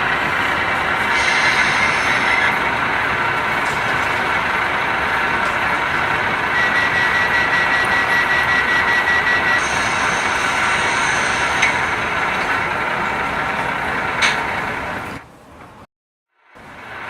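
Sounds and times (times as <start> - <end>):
steady high tone: 0.0 - 13.5
railcar engine running: 0.0 - 17.0.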